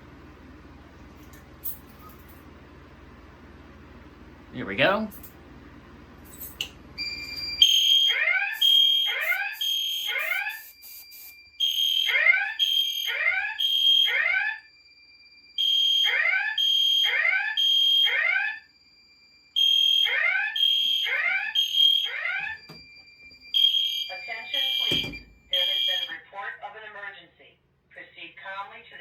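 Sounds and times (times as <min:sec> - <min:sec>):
fire alarm horn blasts: 0:07.0 - 0:26.2.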